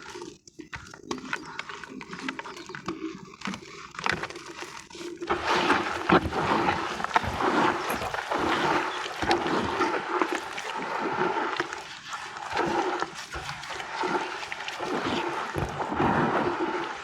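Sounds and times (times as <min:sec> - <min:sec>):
wet sand crumbling in water: 0:05.3 - 0:17.0.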